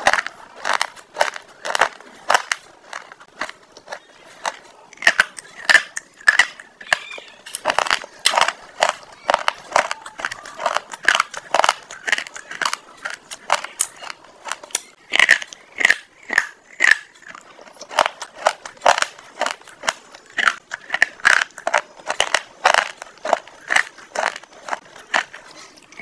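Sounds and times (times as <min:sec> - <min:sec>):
crunchy chewing of food: 0:00.0 - 0:26.0.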